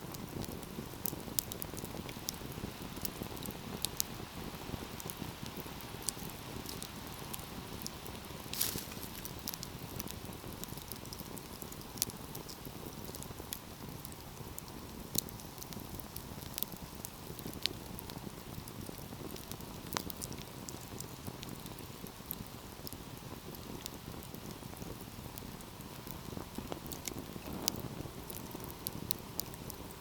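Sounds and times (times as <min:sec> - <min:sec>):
sharp pops and snaps of fire: 0:00.0 - 0:30.0
wood fire burning: 0:00.0 - 0:30.0.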